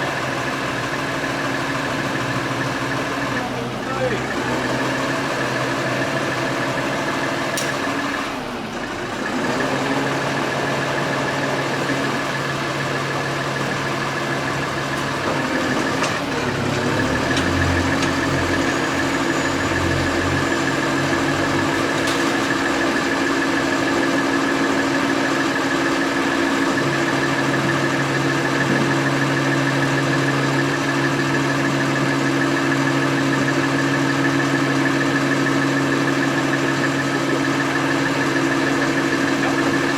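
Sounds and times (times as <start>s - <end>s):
vehicle engine idling: 0.0s - 39.9s.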